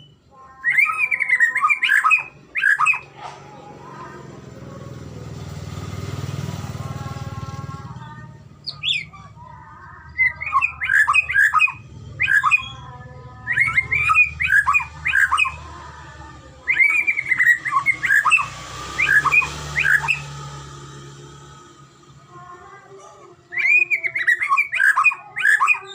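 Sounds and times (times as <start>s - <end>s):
bird singing whistled notes: 0.0s - 3.1s, 8.6s - 9.2s, 10.1s - 15.6s, 16.6s - 20.6s, 23.5s - 25.9s.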